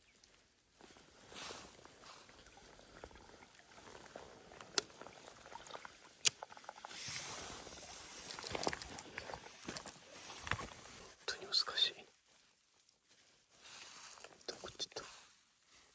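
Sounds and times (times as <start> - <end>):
rustling: 6.8 - 15.9.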